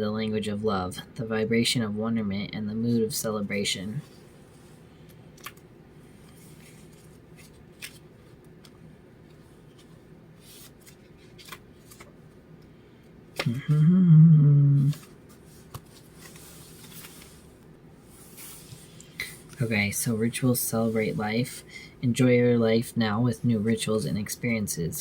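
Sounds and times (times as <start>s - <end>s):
cards clicking and rustling: 5.3s - 12.2s, 14.8s - 17.6s
person humming: 13.4s - 15.1s.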